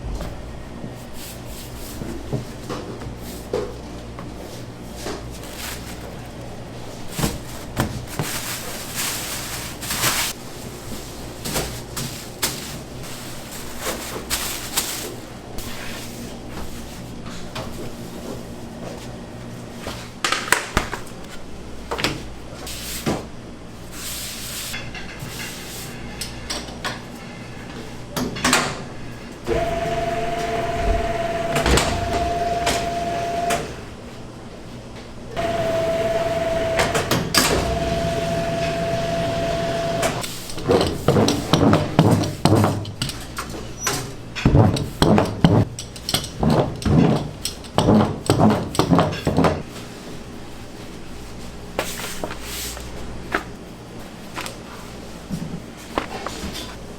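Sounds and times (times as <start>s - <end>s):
machine humming: 29.5s - 34.0s, 35.4s - 40.2s.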